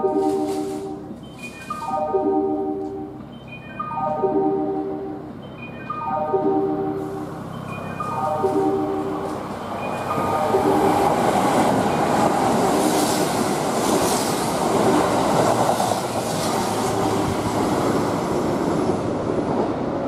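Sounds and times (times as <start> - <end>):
train wheels rushing on rail: 7.0 - 20.0.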